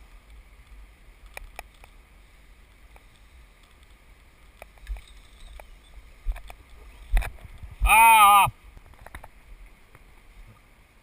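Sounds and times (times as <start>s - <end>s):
wind buffeting microphone: 6.2s - 7.9s.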